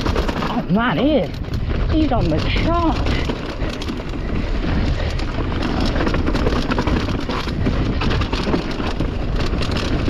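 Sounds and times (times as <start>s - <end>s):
bike rattles and clicks: 0.0s - 10.0s
bike tyres rolling over leaves: 0.0s - 10.0s
wind on microphone: 0.0s - 10.0s.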